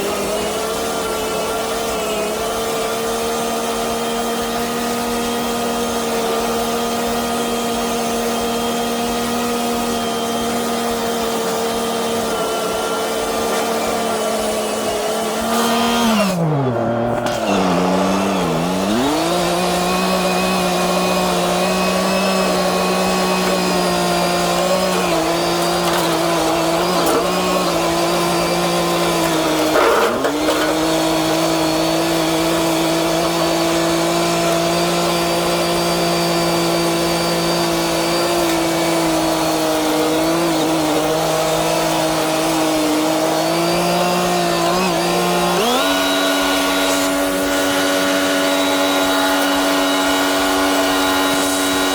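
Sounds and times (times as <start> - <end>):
tractor diesel engine running: 10.5 - 42.4.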